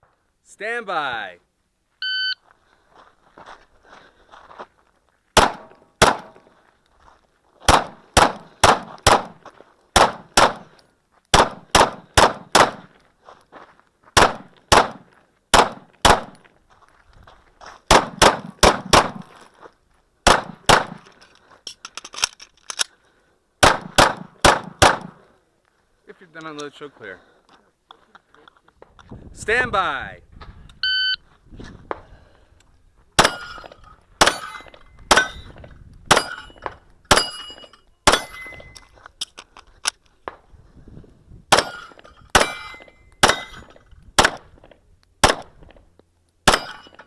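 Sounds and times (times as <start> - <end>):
shot timer beep: 2.0 - 2.4, 30.8 - 31.2
pistol shots: 5.4 - 6.4, 7.7 - 9.4, 10.0 - 12.9, 14.2 - 16.4, 17.9 - 19.3, 20.2 - 21.0, 23.6 - 25.2, 33.2 - 34.5, 35.1 - 35.4, 36.1 - 36.4, 37.1 - 37.4, 38.0 - 38.6, 41.5 - 44.5, 45.2 - 45.6, 46.4 - 47.0.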